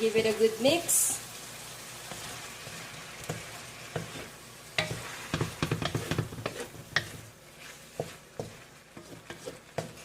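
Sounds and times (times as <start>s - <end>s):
food sizzling: 0.0s - 10.0s
utensil knocking against pan: 4.8s - 7.2s.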